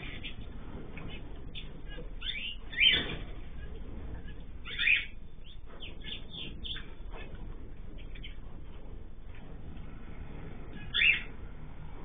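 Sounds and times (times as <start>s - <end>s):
cage birds calling: 0.0s - 12.0s
bird chirps: 1.1s - 3.2s, 4.2s - 7.0s, 10.7s - 11.4s.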